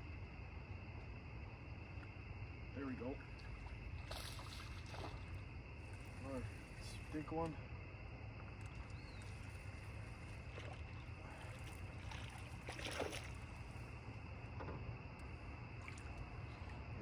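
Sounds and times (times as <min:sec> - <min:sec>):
boat engine low hum: 0:00.0 - 0:17.0
faint water noise: 0:00.0 - 0:17.0
splash: 0:03.4 - 0:07.2, 0:08.5 - 0:13.9, 0:15.8 - 0:16.8.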